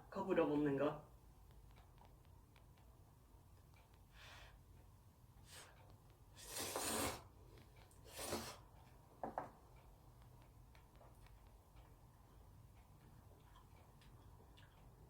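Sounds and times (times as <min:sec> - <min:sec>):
noodles being slurped: 0:06.4 - 0:07.3, 0:08.1 - 0:08.6.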